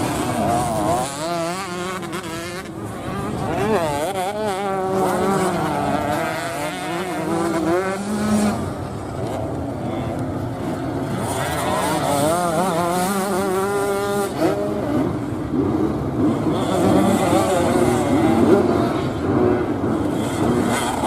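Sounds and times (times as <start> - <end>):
motocross bike engines revving: 0.0 - 21.0.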